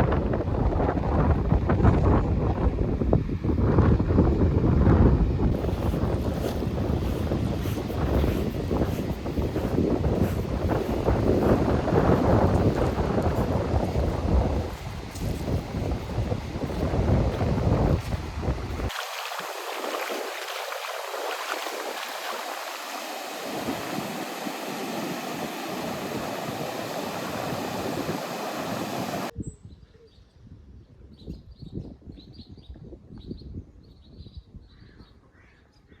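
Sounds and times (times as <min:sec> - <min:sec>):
wind buffeting microphone: 0:00.0 - 0:35.2
surf washing on beach: 0:05.5 - 0:29.3.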